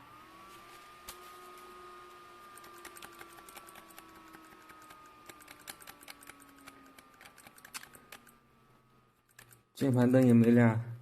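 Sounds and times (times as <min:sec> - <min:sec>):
faint steady whine: 0:00.0 - 0:11.0
computer keyboard keys clicking: 0:02.6 - 0:08.4, 0:09.3 - 0:10.5.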